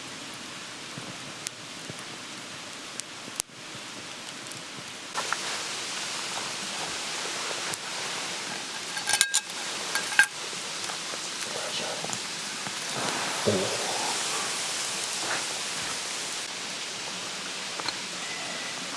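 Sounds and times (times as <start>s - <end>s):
steady hissing: 3.8s - 18.9s.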